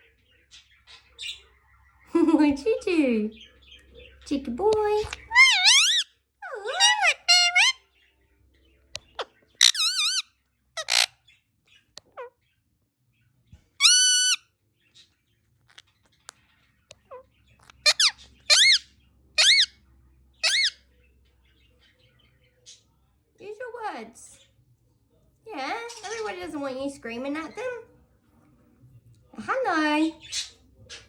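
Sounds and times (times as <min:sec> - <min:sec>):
parrot screaming: 0:05.1 - 0:07.8, 0:09.6 - 0:11.1, 0:13.8 - 0:14.4, 0:17.8 - 0:19.8, 0:20.4 - 0:20.8.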